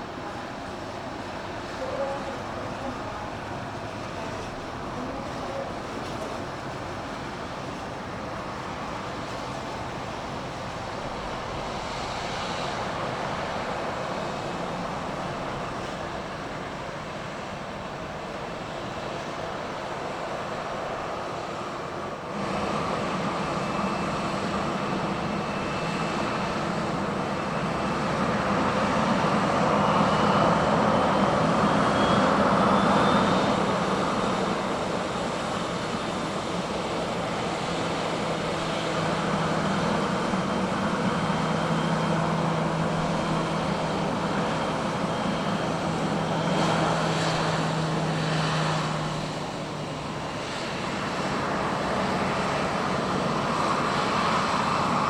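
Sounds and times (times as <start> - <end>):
jet engines droning: 0.0 - 55.0.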